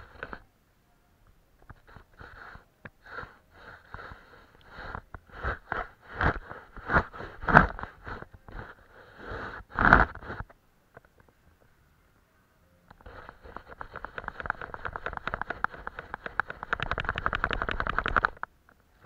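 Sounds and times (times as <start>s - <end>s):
paintbrush swishing on paper: 13.0s - 17.9s.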